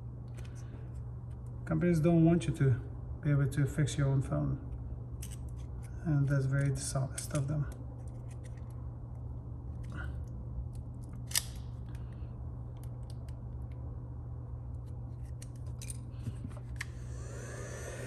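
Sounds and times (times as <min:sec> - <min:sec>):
small motor whine: 0:16.8 - 0:18.0.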